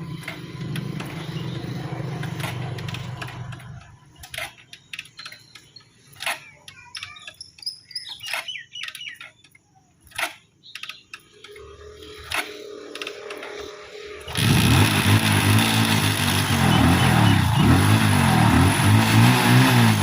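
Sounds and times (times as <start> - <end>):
motorcycle engine running: 0.0 - 4.2, 12.0 - 20.0
birds chirping: 0.0 - 18.4.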